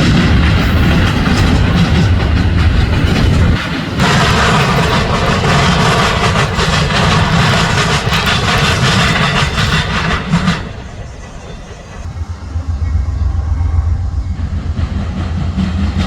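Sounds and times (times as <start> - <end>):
train cars rattling over rails: 0.0 - 16.0.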